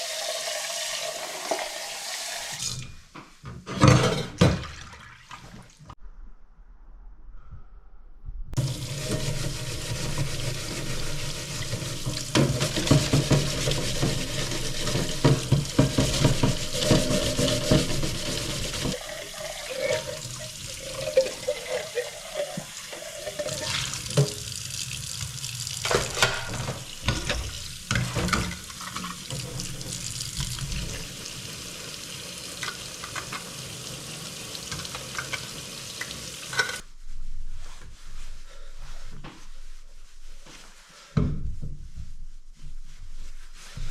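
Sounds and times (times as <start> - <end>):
water running and splashing: 8.6 - 36.8.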